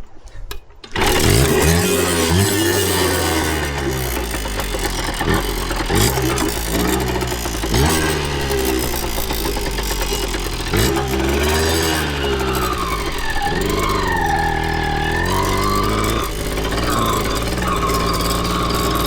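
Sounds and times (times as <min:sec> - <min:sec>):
two-stroke motorcycle engine revving: 0:00.9 - 0:19.0.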